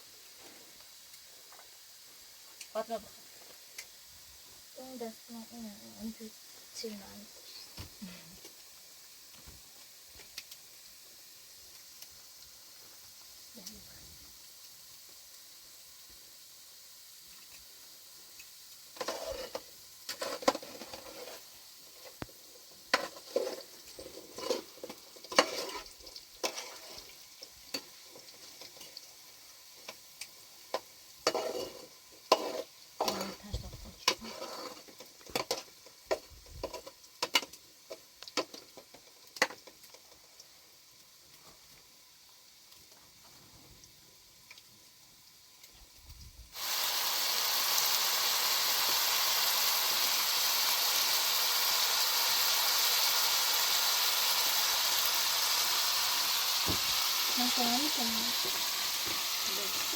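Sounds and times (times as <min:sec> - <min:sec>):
food sizzling in a pan: 0:00.0 - 0:59.9
spoon scraping a pan: 0:19.0 - 0:29.0, 0:30.7 - 0:38.6.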